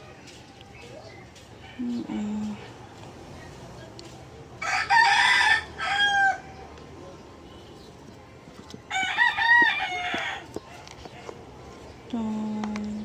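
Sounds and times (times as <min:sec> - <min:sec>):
rooster crowing: 0:04.6 - 0:06.6, 0:08.9 - 0:10.5.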